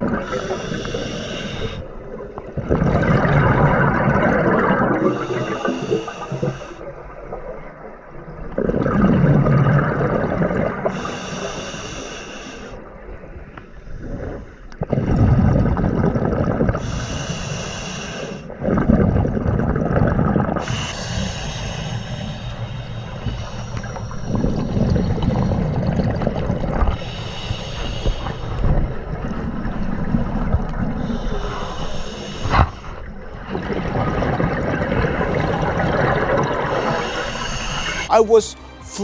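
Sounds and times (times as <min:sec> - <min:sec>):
exhaled bubbles rushing: 0:00.0 - 0:01.1, 0:01.7 - 0:10.9, 0:14.0 - 0:16.8, 0:18.6 - 0:20.8, 0:24.2 - 0:27.1, 0:32.4 - 0:38.1
regulator breathing hiss: 0:00.2 - 0:01.9, 0:05.1 - 0:06.8, 0:10.9 - 0:12.8, 0:16.8 - 0:18.5, 0:20.6 - 0:24.6, 0:27.0 - 0:28.7, 0:31.1 - 0:33.0, 0:36.7 - 0:38.1.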